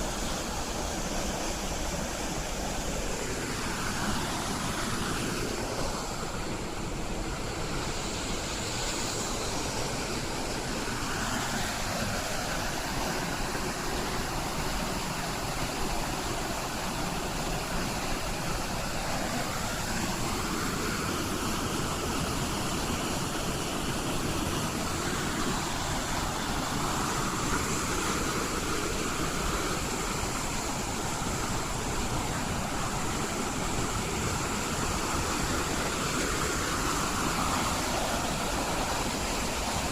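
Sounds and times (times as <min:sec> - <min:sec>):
whitewater rushing: 0:00.0 - 0:39.9.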